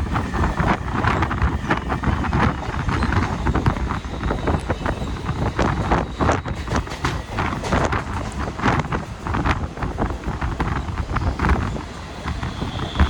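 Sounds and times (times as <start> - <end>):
train rumbling on track: 0.0 - 13.0
train wheels clanking: 0.0 - 13.0.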